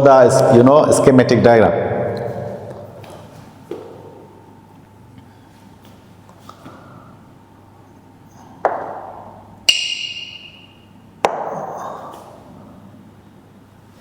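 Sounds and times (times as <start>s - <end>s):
sharp percussive hits: 8.7s - 11.6s.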